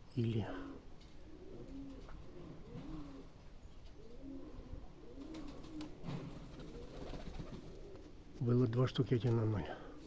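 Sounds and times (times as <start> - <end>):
pigeons cooing: 0.4 - 8.4.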